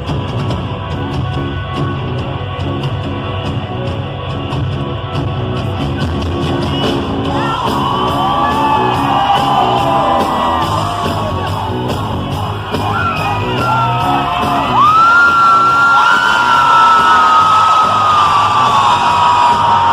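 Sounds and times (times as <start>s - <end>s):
live rock band playing: 0.0s - 19.9s
audience screaming and whooping: 6.8s - 19.9s.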